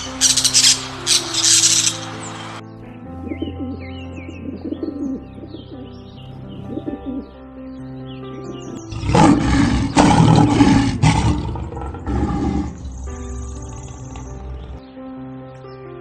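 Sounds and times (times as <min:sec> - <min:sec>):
low cooing calls: 0:00.0 - 0:02.6, 0:03.3 - 0:05.9, 0:06.6 - 0:07.3, 0:08.5 - 0:14.8
birds chirping: 0:00.0 - 0:15.0
background music: 0:00.0 - 0:16.0
large animal roaring: 0:08.9 - 0:14.8.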